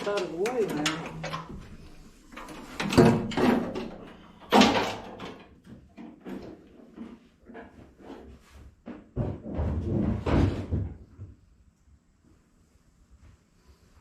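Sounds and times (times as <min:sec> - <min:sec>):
light taps and rattles: 0:00.0 - 0:10.0.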